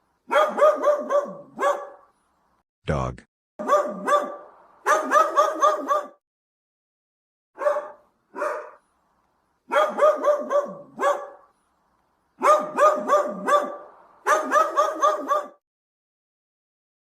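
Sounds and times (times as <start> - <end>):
dog barking: 0.3 - 2.1, 3.6 - 6.2, 7.6 - 8.8, 9.7 - 11.5, 12.4 - 15.6.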